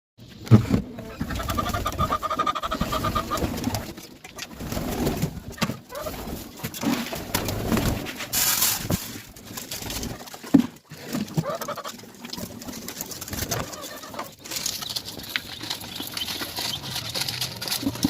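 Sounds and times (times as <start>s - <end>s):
pigeons cooing: 0.8s - 6.5s, 11.3s - 18.0s.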